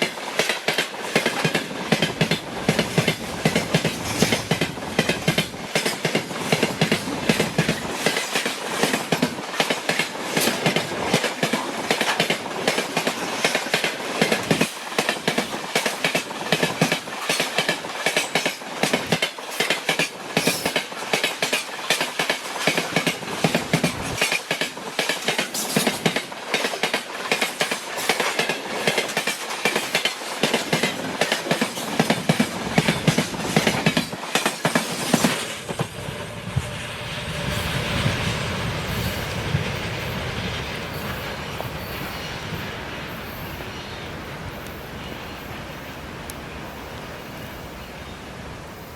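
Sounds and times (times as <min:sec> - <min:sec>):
train wheels clattering over rail joints: 0:00.0 - 0:36.0.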